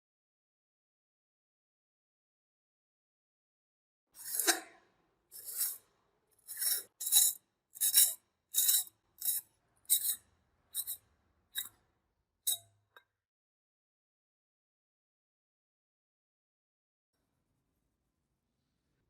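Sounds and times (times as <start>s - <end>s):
hand tool scraping rusty metal: 4.2s - 4.8s, 5.4s - 5.8s, 6.4s - 10.2s, 10.8s - 11.0s.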